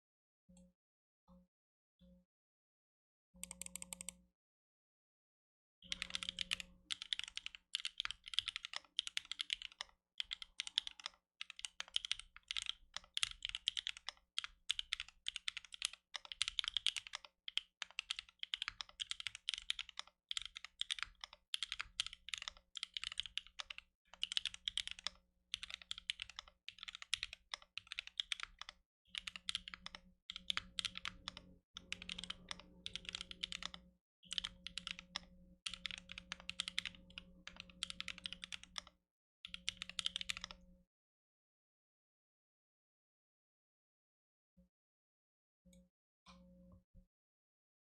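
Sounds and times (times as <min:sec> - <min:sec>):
mechanical keyboard key clacks: 0:14.7 - 0:38.9.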